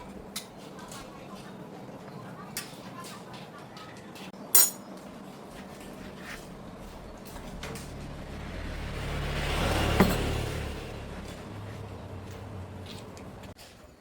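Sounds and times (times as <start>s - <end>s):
motor vehicle passing: 5.8s - 13.6s.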